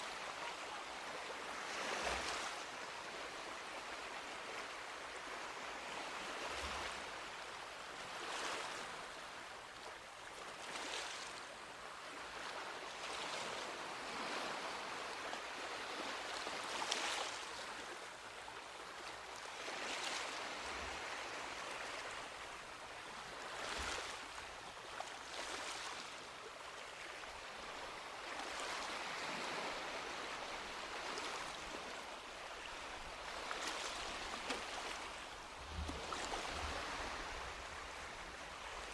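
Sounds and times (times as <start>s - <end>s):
small waves washing onto beach: 10.5s - 38.9s.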